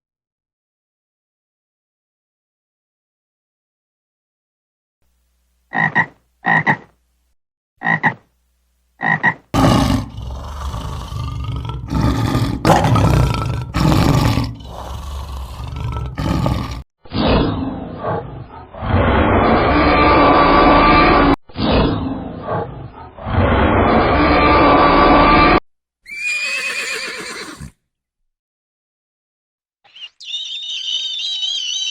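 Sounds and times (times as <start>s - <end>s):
animal calling roughly: 26.1s - 27.7s.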